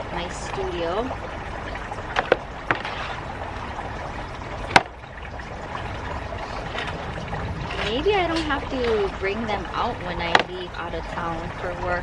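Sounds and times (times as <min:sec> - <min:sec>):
sharp knocks and clicks: 0:02.2 - 0:02.9.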